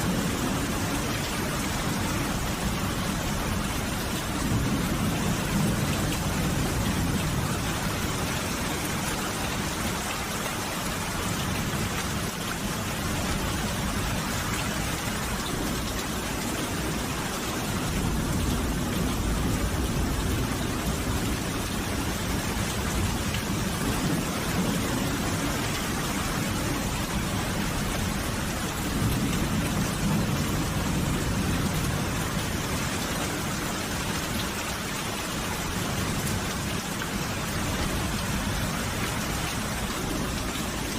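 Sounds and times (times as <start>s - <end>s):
steady rain hiss: 0.0s - 40.9s
thunder rumbles: 11.0s - 33.4s.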